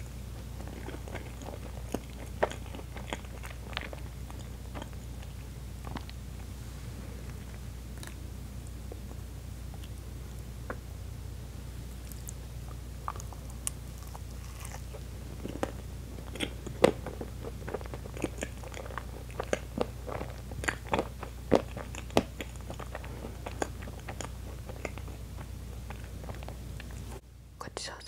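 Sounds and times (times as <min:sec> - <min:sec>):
steady low hum: 0:00.0 - 0:28.0
person biting and chewing: 0:00.6 - 0:06.2, 0:11.9 - 0:27.1.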